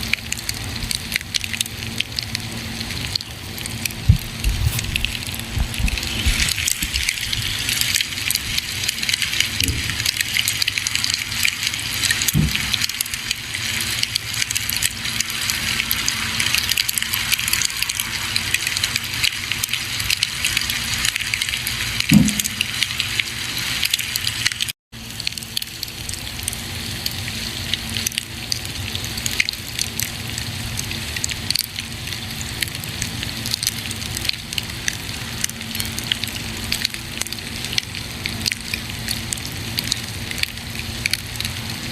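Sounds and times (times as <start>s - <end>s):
campfire crackling: 0.1s - 24.7s
fire pops: 4.0s - 7.5s, 9.1s - 10.2s, 12.1s - 13.2s, 22.1s - 22.9s.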